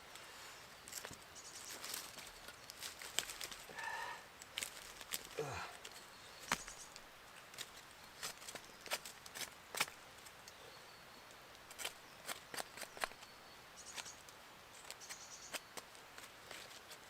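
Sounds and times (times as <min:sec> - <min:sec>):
faint birdsong: 0:00.0 - 0:17.0
twigs and leaves breaking underfoot: 0:00.9 - 0:10.3.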